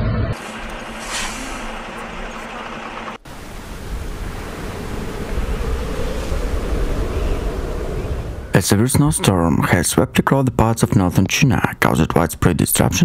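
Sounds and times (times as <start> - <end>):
blizzard wind buffeting microphone: 0.3 - 8.9.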